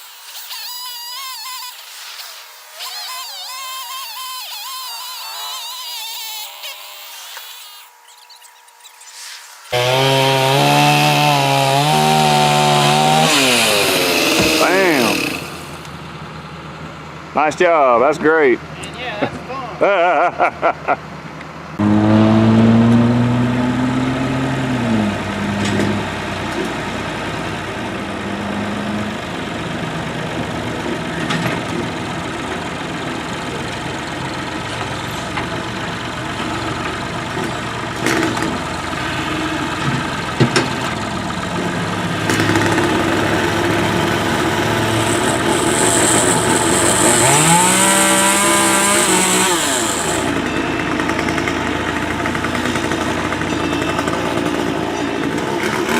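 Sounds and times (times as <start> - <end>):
engine running and revving: 9.7 - 16.0, 21.7 - 55.9.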